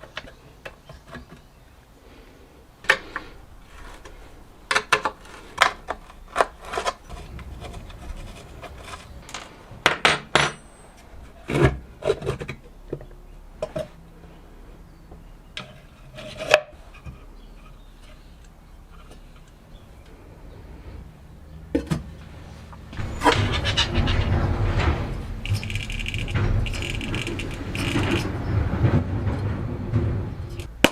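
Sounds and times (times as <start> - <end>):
scraping and rubbing: 2.8 - 10.3, 15.6 - 21.0, 22.2 - 30.9
rattling: 2.8 - 12.8, 21.7 - 30.9
tools and metal parts clicking: 23.0 - 28.5.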